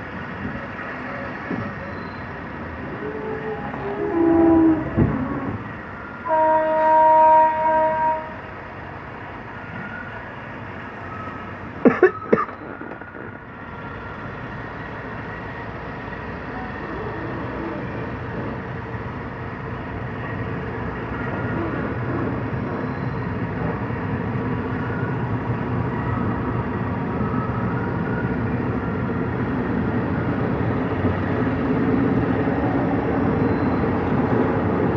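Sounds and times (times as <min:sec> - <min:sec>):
train rumbling: 0:00.0 - 0:34.9
train horn: 0:03.0 - 0:05.3, 0:06.2 - 0:08.5.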